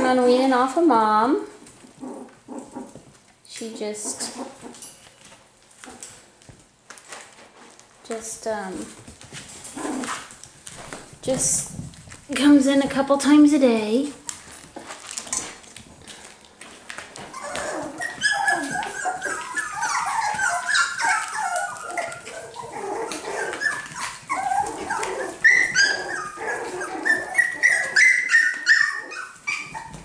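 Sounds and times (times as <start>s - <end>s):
puppies yipping and whimpering: 17.0s - 30.0s.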